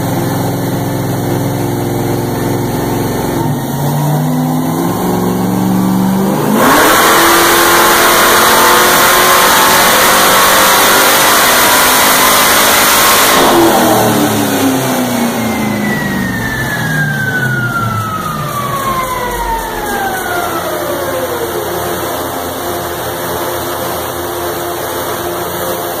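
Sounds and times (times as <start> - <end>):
car engine revving at full throttle: 0.0 - 26.0
whine of rollers coasting down: 13.6 - 25.9.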